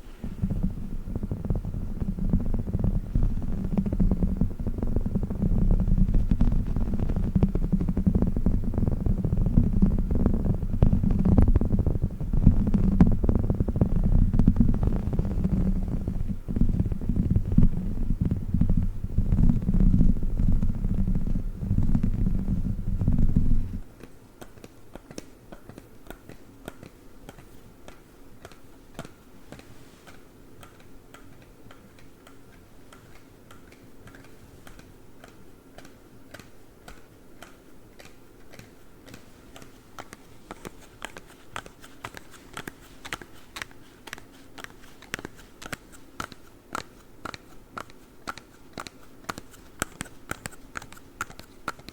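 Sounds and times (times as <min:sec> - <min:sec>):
low rumbling of toy: 0:00.2 - 0:23.8
claw gloves tapping and clicking: 0:00.4 - 0:51.9.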